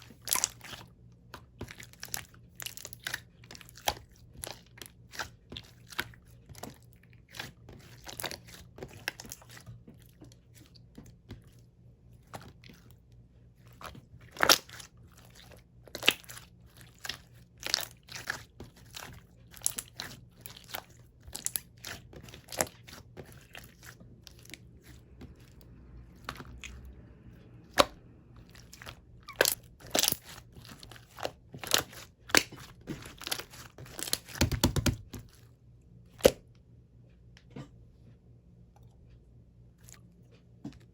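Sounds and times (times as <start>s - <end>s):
slime squeezed by hand: 27.7s - 30.4s.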